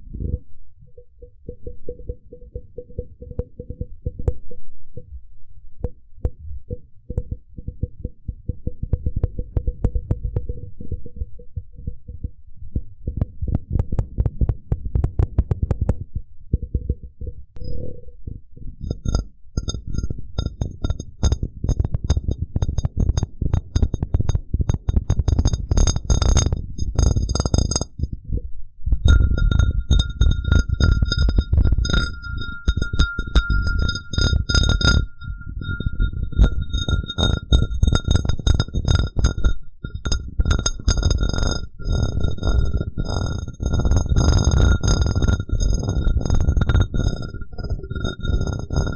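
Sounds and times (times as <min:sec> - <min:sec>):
glass cup tapped and rubbed: 0:07.1 - 0:11.2, 0:11.8 - 0:18.0, 0:18.8 - 0:48.9
glass ringing: 0:29.1 - 0:40.1.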